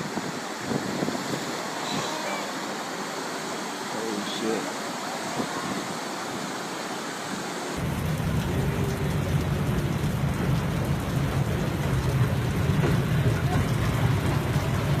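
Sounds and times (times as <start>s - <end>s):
rain: 0.0s - 15.0s.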